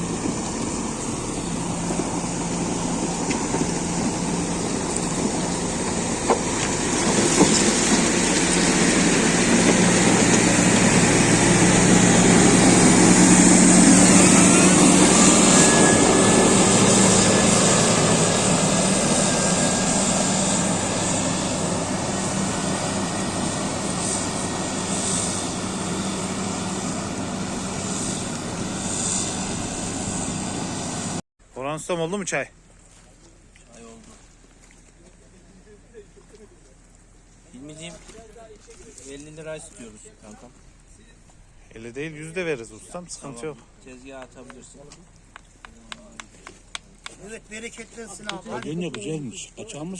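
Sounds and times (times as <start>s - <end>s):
diesel engine running: 0.0s - 31.2s.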